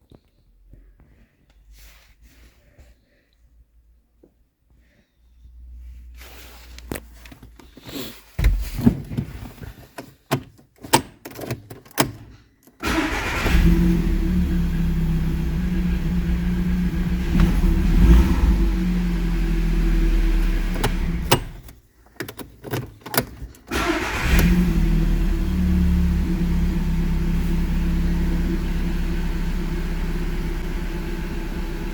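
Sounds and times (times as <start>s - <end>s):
car engine running: 13.2s - 21.7s, 24.0s - 31.9s.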